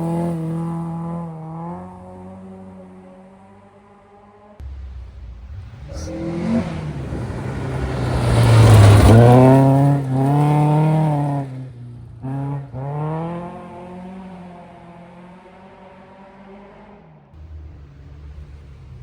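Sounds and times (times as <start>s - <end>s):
rally car passing at speed: 0.0s - 19.0s.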